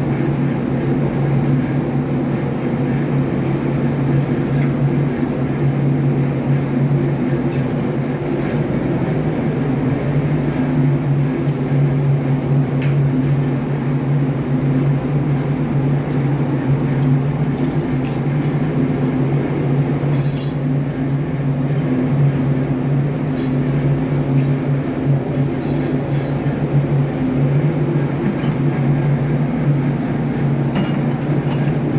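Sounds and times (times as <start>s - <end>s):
engine room machinery droning: 0.0s - 31.9s
light metallic clinks: 7.5s - 8.8s, 17.0s - 18.7s, 20.1s - 20.7s, 23.3s - 24.7s, 25.3s - 26.6s, 28.1s - 29.0s, 30.7s - 31.9s.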